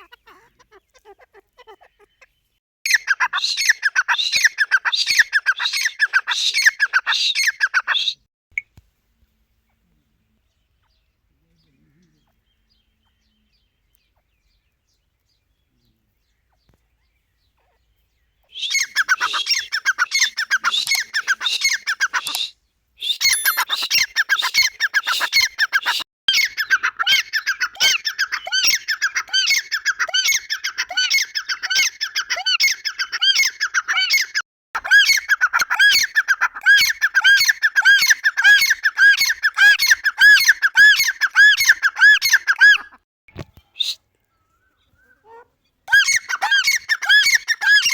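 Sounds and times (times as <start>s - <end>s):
francolin calling shrill notes: 18.5s - 26.4s.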